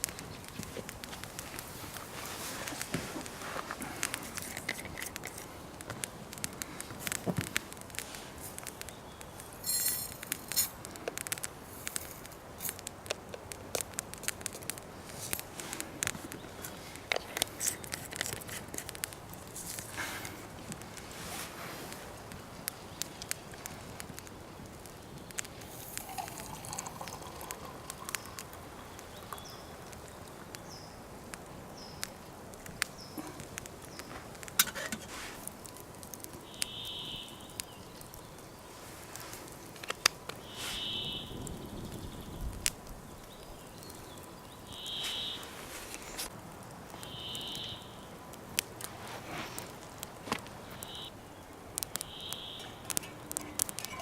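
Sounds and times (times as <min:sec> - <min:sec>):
sharp clicks and crackles: 0:00.0 - 0:54.0
bird buzzy call: 0:40.4 - 0:41.4, 0:44.8 - 0:45.6.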